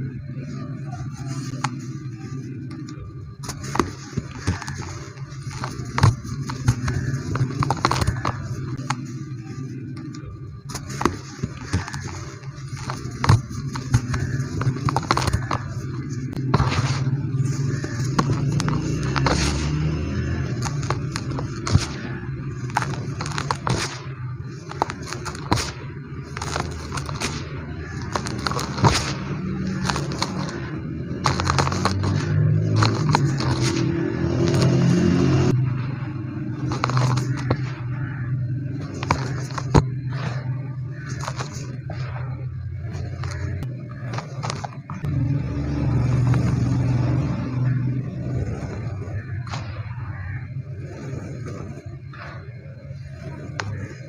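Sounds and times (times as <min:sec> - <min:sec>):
low hum: 0:00.0 - 0:54.0
cement crumbling and scraping: 0:03.4 - 0:09.2, 0:10.6 - 0:35.0, 0:36.6 - 0:37.8, 0:38.7 - 0:41.8, 0:42.9 - 0:45.1.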